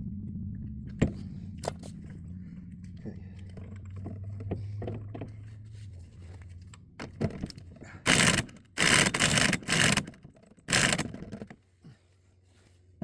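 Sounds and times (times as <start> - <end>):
impact wrench hammering: 8.1 - 10.1, 10.7 - 11.2.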